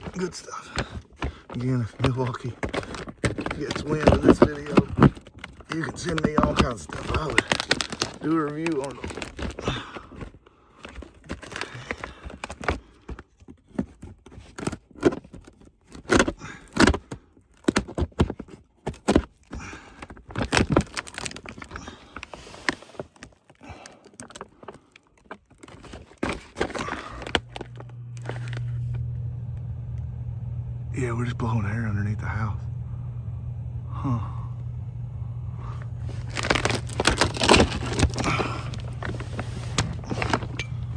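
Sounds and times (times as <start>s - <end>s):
steady low hum: 26.8s - 40.9s.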